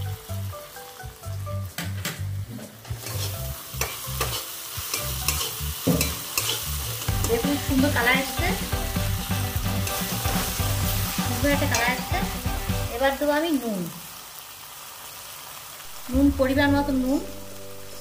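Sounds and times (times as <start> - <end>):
masala sizzling in hot oil: 0.0 - 18.0
spoon scraping a pan: 2.5 - 7.6.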